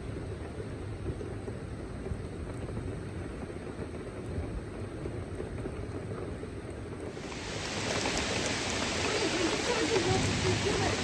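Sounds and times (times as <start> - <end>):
rain and wind rushing: 0.0 - 11.0.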